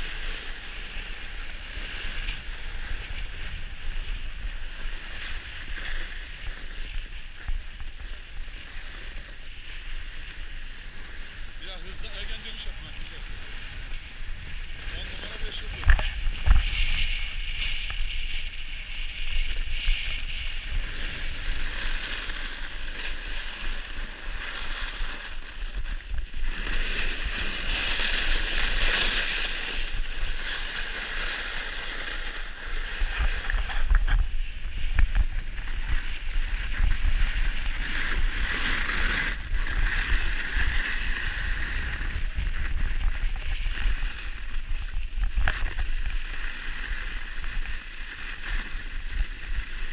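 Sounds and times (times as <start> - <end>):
skis scraping on snow: 0.0 - 49.9
wind rumbling on microphone: 0.0 - 49.9.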